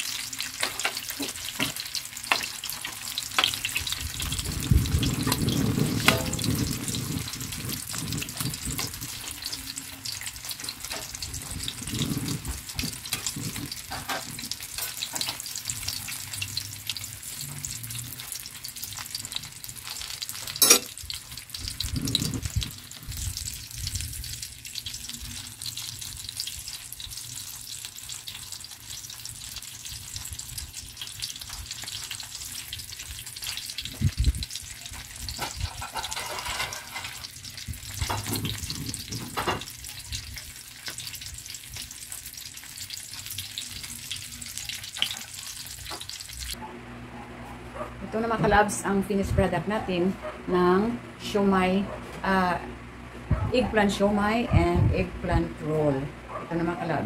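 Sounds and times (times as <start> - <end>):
food frying in hot oil: 0.0 - 46.6
metal tongs knocking on pan: 6.0 - 6.5, 20.5 - 20.9.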